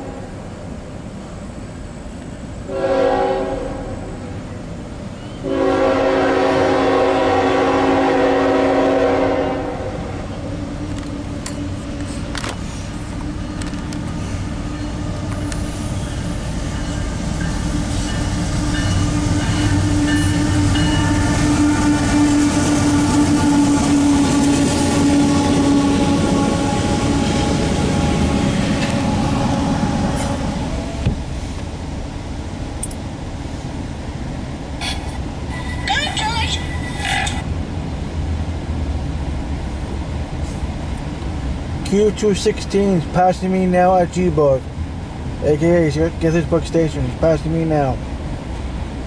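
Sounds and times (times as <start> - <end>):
diesel locomotive engine drone: 0.0 - 49.0
train wheels rolling on rails: 0.0 - 49.0
locomotive horn: 2.7 - 4.0, 5.4 - 10.2, 17.9 - 31.0.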